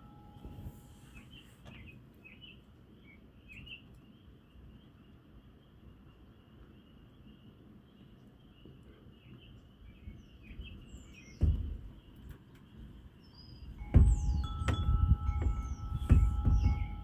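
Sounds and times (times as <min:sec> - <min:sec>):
birds chirping: 0:08.7 - 0:17.0
low wind rumble: 0:09.9 - 0:17.0
wind buffeting microphone: 0:09.9 - 0:17.0.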